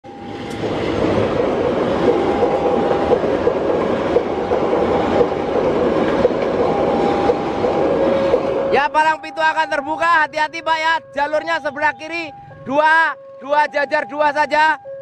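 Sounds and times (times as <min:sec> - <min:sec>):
train wheels rushing on rails: 0:00.1 - 0:10.9
wheels clacking: 0:00.5 - 0:09.2.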